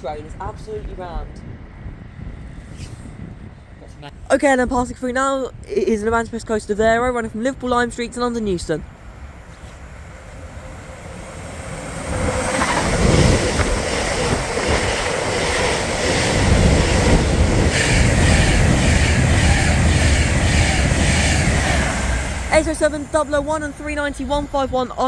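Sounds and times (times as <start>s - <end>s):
electric train passing at speed: 0.0s - 3.8s, 7.0s - 25.0s
wheels clattering over rails: 9.4s - 24.2s.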